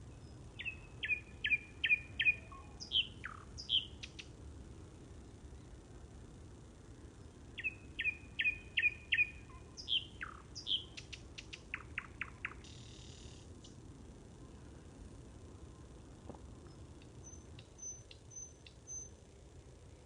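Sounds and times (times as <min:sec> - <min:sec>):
songbird singing: 0:00.0 - 0:04.5, 0:05.1 - 0:20.0
faint low rumble: 0:00.0 - 0:20.0.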